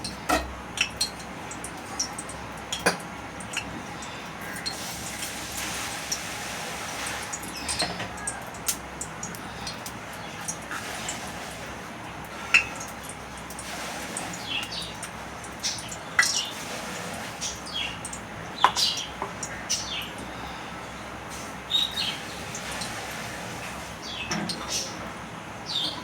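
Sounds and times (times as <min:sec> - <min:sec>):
small birds chirping: 0:14.2 - 0:16.6, 0:17.4 - 0:21.1, 0:21.7 - 0:22.6, 0:24.0 - 0:25.0, 0:25.6 - 0:26.0.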